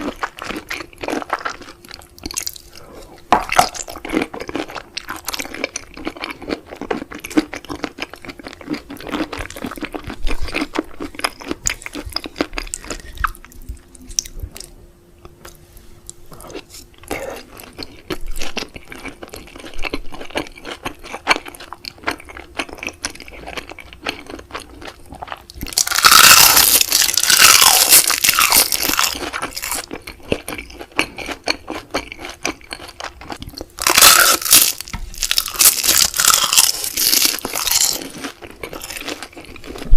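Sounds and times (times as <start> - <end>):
crunchy chewing of seafood: 0.0 - 39.9.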